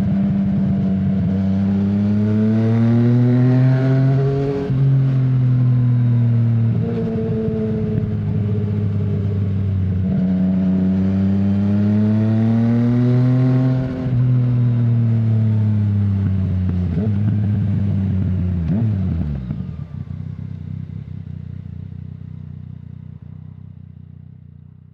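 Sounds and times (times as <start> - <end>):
motorcycle engine revving: 0.0 - 24.8.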